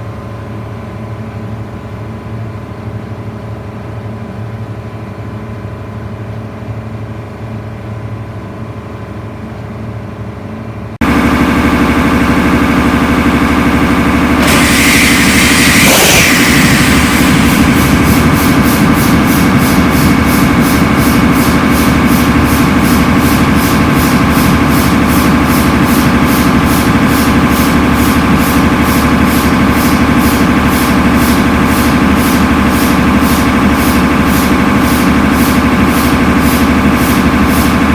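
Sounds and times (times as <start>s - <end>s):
diesel engine running: 10.7s - 37.9s
rushing hiss: 14.4s - 28.6s.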